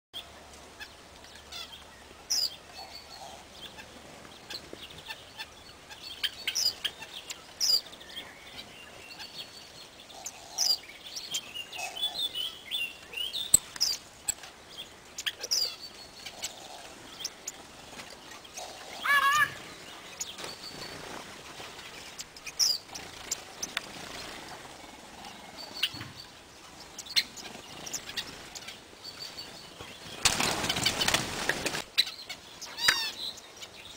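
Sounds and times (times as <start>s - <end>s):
small birds chirping: 0.2s - 33.9s
wavering bird call: 18.6s - 19.7s.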